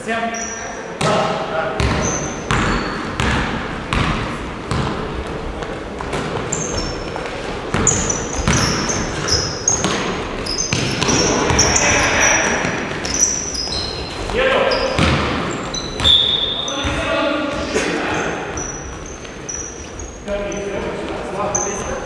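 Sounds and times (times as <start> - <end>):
sneaker squeaks on court: 0.3 - 1.1, 1.8 - 4.1, 6.1 - 20.8, 21.5 - 22.0
basketballs bouncing on gym floor: 1.0 - 22.0.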